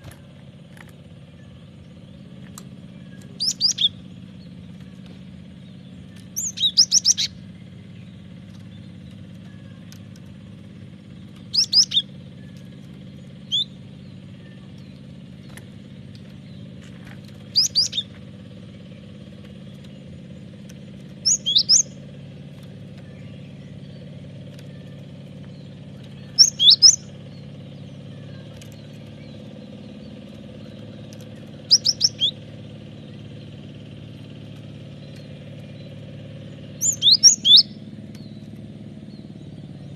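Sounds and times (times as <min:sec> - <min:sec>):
steady low hum: 0:00.0 - 0:39.9
bird calling high descending notes: 0:25.9 - 0:27.2, 0:31.6 - 0:32.5, 0:36.7 - 0:37.8.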